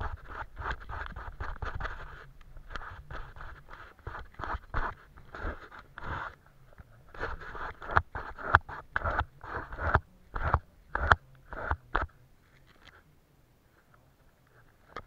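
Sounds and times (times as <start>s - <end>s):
paintbrush scratching on paper: 0.0s - 6.4s, 7.0s - 12.1s.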